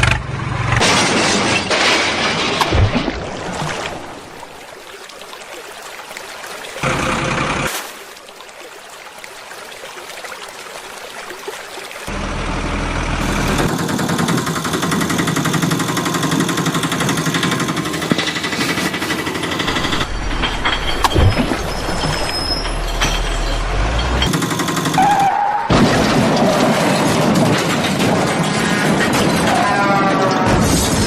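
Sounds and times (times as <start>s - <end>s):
vehicle engine running: 12.1s - 20.5s.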